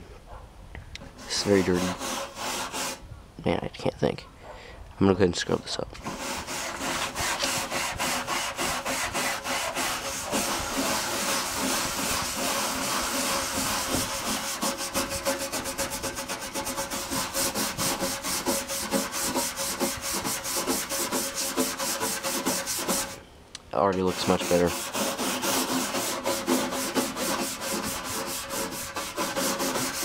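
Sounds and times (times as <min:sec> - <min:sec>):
scrubbing strokes on computer casing: 0:01.1 - 0:03.0, 0:06.0 - 0:23.2, 0:24.0 - 0:30.0.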